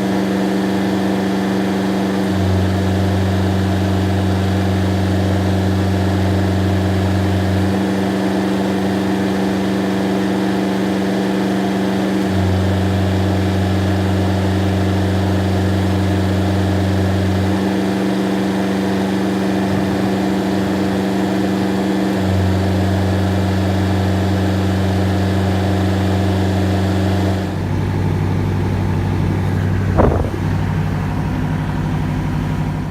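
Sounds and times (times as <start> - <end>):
tractor diesel engine running: 0.0 - 32.9
air conditioner hum: 27.8 - 32.9.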